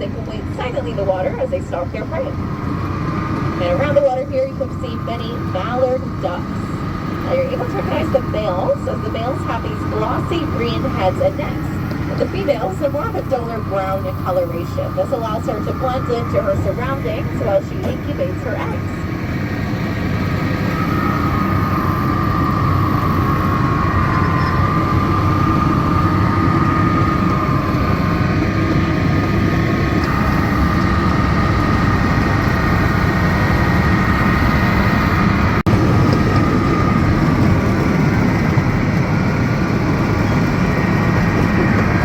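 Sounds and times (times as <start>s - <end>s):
miniature train rumbling on track: 0.0s - 42.0s.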